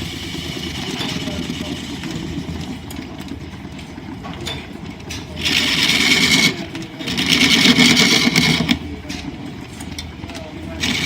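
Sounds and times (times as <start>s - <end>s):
turning tool cutting wood: 5.4s - 8.8s, 10.8s - 11.0s
wood lathe humming: 5.4s - 8.8s, 10.8s - 11.0s.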